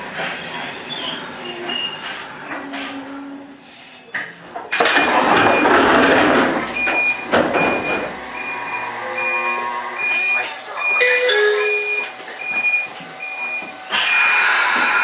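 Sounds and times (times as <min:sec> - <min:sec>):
short high electronic beeps: 0:11.0 - 0:12.1.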